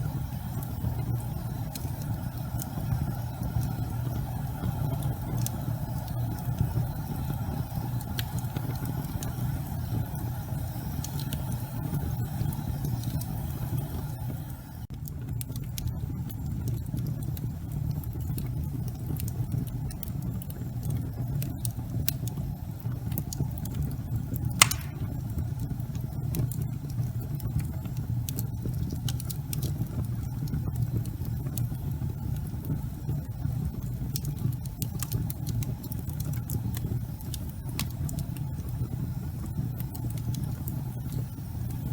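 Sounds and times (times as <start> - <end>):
fire rumbling and crackling: 0.0 - 41.9
loud pop from fire: 24.6 - 25.4.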